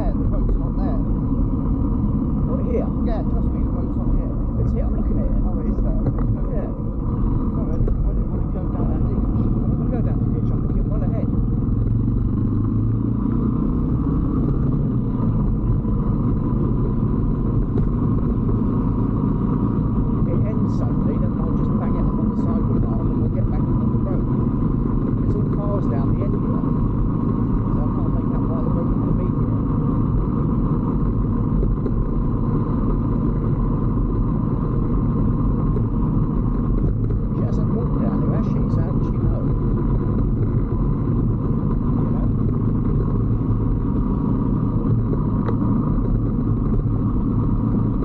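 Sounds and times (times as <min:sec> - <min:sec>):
motorbike engine rumbling: 0:00.0 - 0:48.0
wind and road noise: 0:00.0 - 0:48.0.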